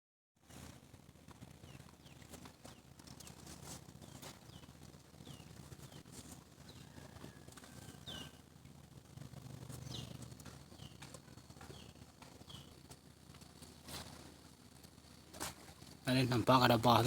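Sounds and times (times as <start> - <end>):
low steady hum: 0.4 - 17.0
faint bird chirps: 4.0 - 8.5.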